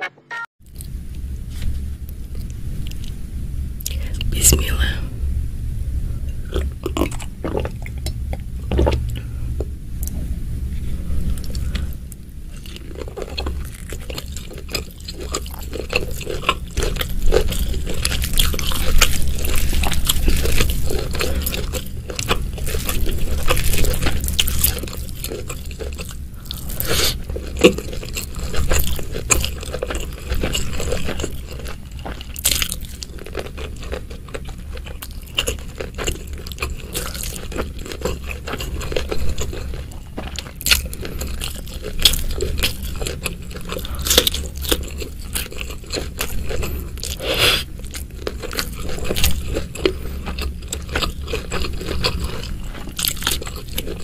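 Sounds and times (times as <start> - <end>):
steady low hum: 0.0 - 54.0
wet chewing: 11.3 - 54.0.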